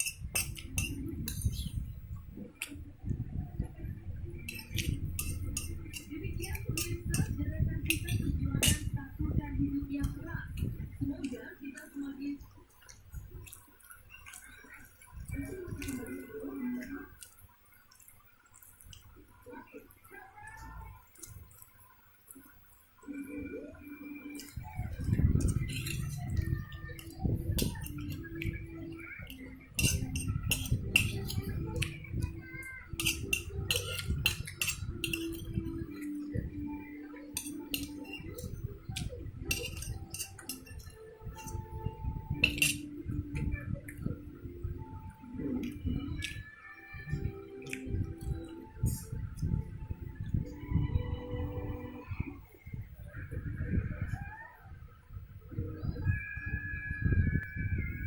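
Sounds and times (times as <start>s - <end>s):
cutlery clinking on plates: 0.0s - 1.8s, 4.4s - 9.0s, 24.4s - 44.0s
wet chewing: 3.6s - 9.1s, 9.9s - 44.4s, 45.0s - 50.6s.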